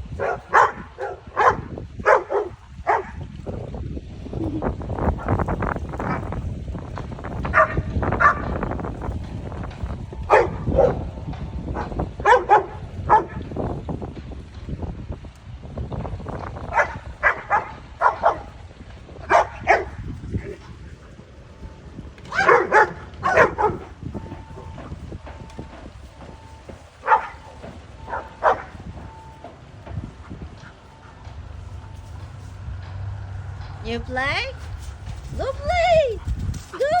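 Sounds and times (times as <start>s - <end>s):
dogs barking: 0.1s - 3.3s, 7.4s - 8.7s, 10.3s - 13.6s, 16.6s - 18.6s, 19.2s - 20.9s, 22.3s - 25.0s, 27.0s - 29.2s.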